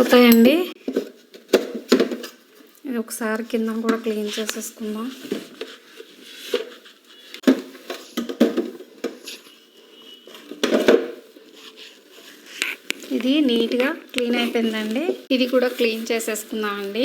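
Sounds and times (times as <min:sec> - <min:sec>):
plastic knocks and clatters: 0:00.8 - 0:02.5, 0:07.4 - 0:09.5, 0:10.3 - 0:11.4
cloth rubbing plastic: 0:03.7 - 0:07.4, 0:11.1 - 0:17.0.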